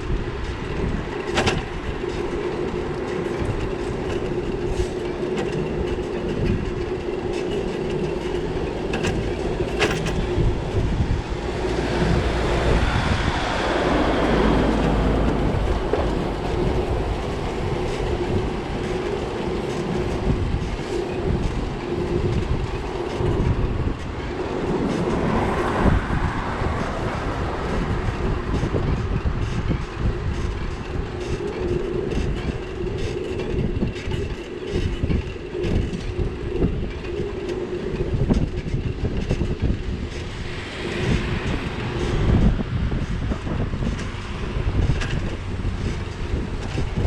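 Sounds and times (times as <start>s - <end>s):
bicycle wind and rolling rumble: 0.0s - 47.0s
rattles and knocks over paving: 0.1s - 12.8s.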